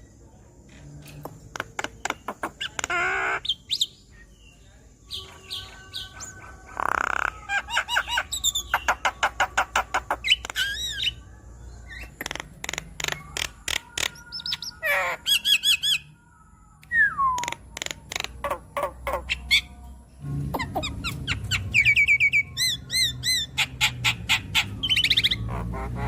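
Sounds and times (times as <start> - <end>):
myna singing chirps and whistles: 5.1 - 11.2, 13.0 - 16.1, 16.8 - 19.7, 20.6 - 26.0.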